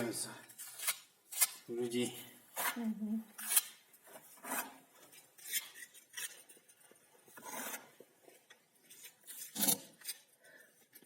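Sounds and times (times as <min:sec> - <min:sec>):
metal trowel scraping mortar: 0:02.5 - 0:08.0, 0:09.0 - 0:10.3.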